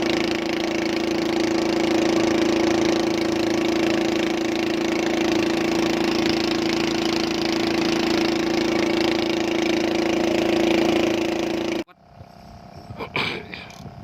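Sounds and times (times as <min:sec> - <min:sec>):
boat engine idling: 0:00.0 - 0:14.0.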